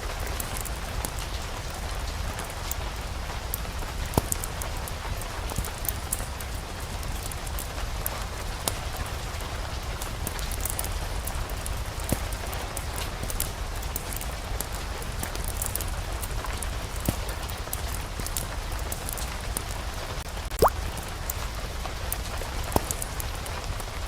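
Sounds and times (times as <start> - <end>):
rain falling: 0.0 - 24.0
sharp clicks and pops: 20.5 - 20.9.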